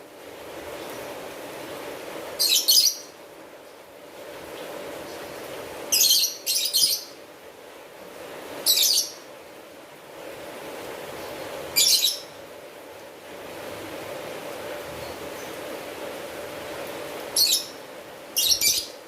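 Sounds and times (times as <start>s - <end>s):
steady background hiss: 0.0s - 19.0s
bird chirping calls: 2.4s - 3.1s, 5.9s - 7.2s, 8.6s - 9.3s, 11.8s - 12.4s, 17.4s - 17.8s, 18.4s - 19.0s.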